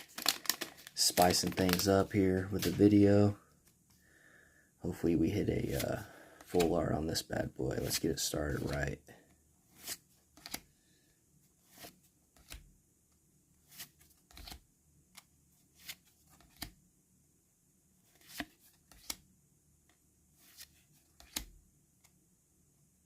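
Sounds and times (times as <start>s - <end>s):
cards swishing and snapping: 9.7s - 10.7s, 13.6s - 16.8s, 18.1s - 19.2s, 20.4s - 21.6s.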